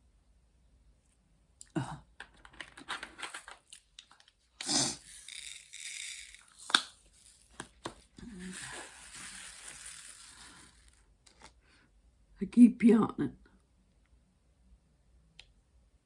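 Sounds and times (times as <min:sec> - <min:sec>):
crinkly material rustling: 0:02.2 - 0:11.6.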